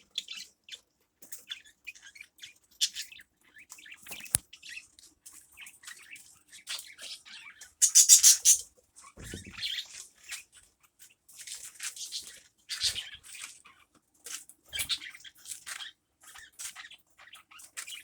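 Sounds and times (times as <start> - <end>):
small birds chirping: 0.0 - 18.0
low thump: 9.2 - 9.6.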